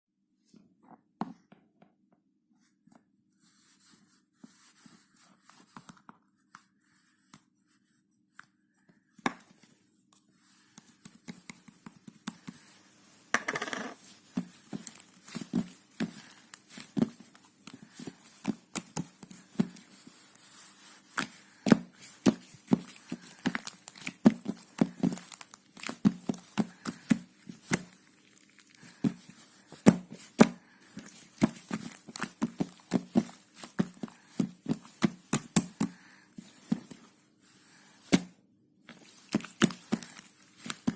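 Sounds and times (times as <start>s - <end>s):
rustling and crinkling: 14.0s - 37.1s, 38.9s - 40.9s.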